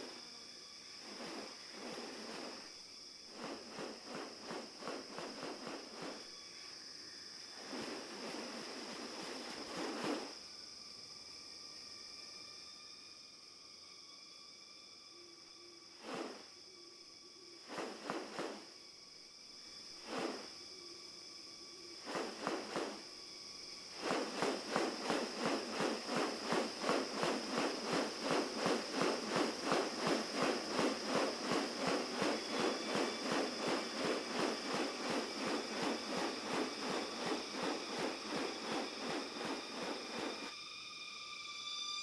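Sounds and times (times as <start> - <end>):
high-pitched insect drone: 0.0 - 42.0
rhythmic pulsing: 24.0 - 40.5.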